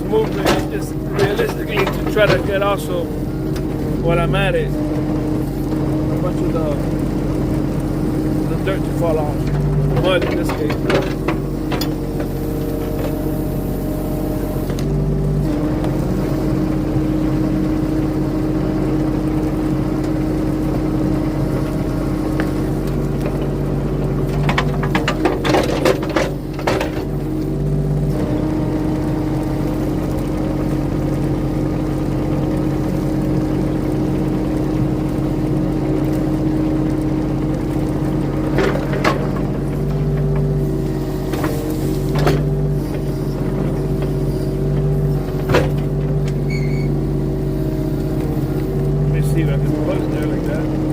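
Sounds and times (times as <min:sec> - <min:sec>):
clanks and rattles: 0:00.0 - 0:13.2, 0:21.6 - 0:27.5, 0:37.6 - 0:47.0
excavator engine running: 0:00.0 - 0:50.9.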